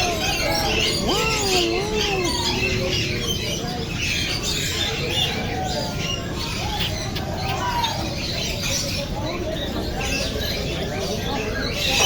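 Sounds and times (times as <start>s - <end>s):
parrots squawking and chirping: 0.0s - 9.1s.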